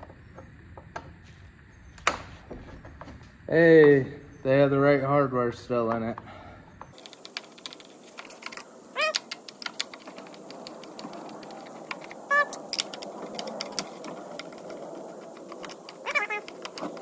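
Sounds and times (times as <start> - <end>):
short squeaks: 8.9 - 9.4, 12.2 - 14.7, 15.6 - 17.0.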